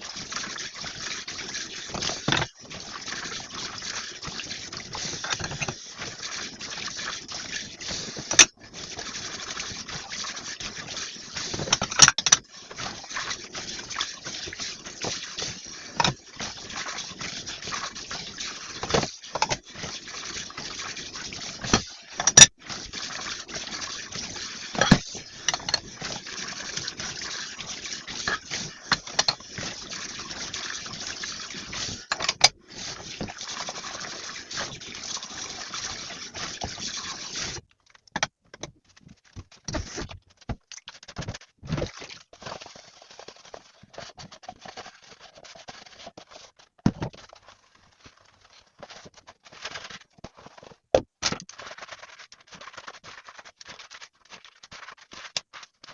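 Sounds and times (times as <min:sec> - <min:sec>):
tap water running: 0:00.0 - 0:55.9
dishes scraping: 0:05.1 - 0:05.8, 0:24.7 - 0:26.1, 0:28.1 - 0:29.4, 0:32.1 - 0:32.6.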